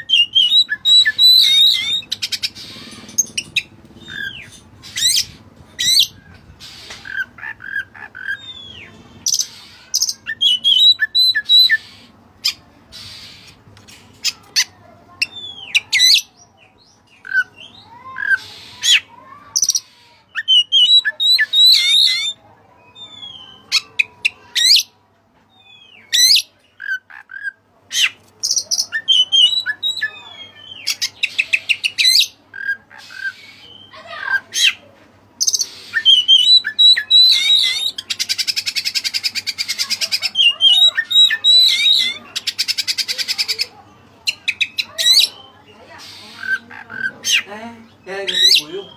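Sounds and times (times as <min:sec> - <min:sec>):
songbird singing: 0:00.0 - 0:13.6, 0:14.2 - 0:24.9, 0:25.5 - 0:48.9.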